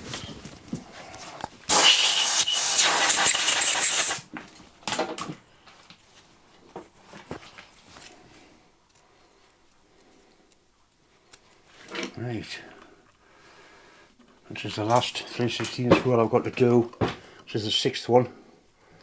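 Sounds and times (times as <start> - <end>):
loud air hiss: 1.7 - 4.3.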